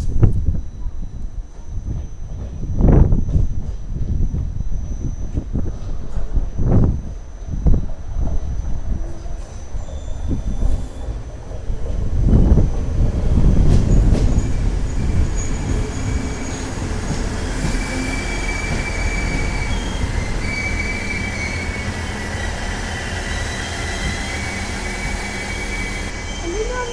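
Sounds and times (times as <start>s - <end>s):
train rumbling: 0.0s - 26.9s
high wheel squeals: 9.4s - 11.3s, 13.9s - 26.9s.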